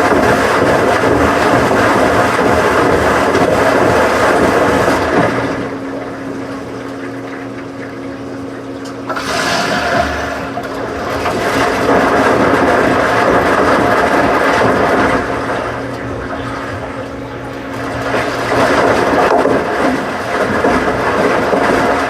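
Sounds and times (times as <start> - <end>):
washing machine motor hum: 0.0 - 22.0
water rushing in washing machine: 0.0 - 22.0.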